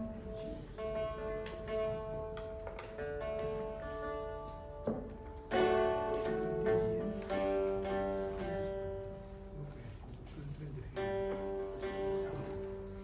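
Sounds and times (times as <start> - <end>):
plucked string folk tune: 0.0 - 13.0.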